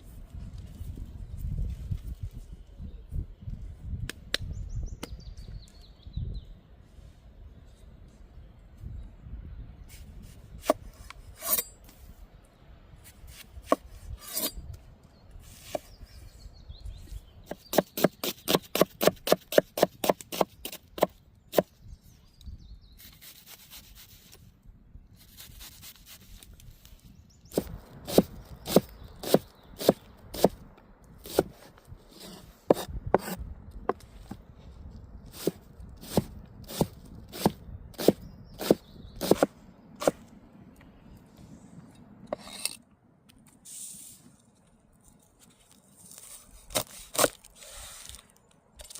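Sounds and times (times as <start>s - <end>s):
knife chopping on wooden board: 27.6s - 30.6s, 35.4s - 40.2s.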